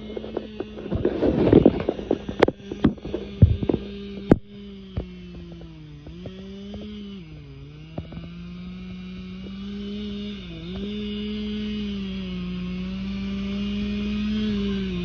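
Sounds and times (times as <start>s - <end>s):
chainsaw cutting wood: 0.0s - 15.0s
sharp knocks: 0.2s - 5.2s.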